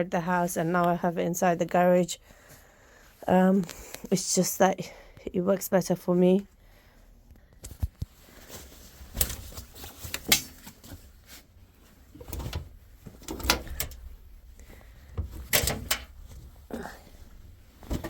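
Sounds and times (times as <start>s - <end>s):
wet laundry rustling: 7.8s - 18.0s.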